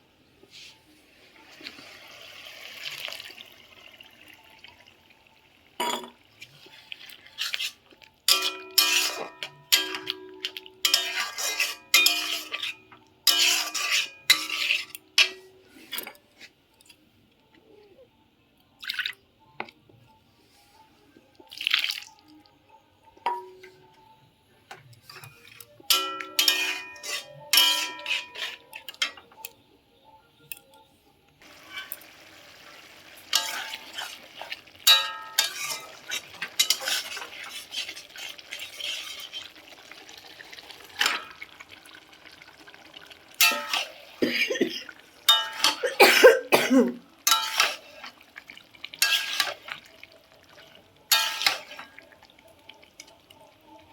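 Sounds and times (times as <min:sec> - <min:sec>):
metal pots and utensils clattering: 0:05.8 - 0:06.6, 0:07.3 - 0:16.3, 0:23.2 - 0:23.8, 0:24.7 - 0:29.5, 0:31.4 - 0:53.9.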